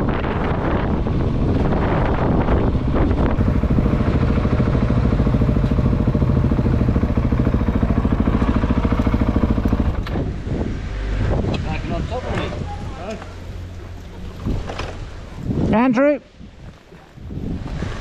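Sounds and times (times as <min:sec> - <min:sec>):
wind buffeting microphone: 0:00.0 - 0:18.0
motorcycle engine idling: 0:03.4 - 0:10.1.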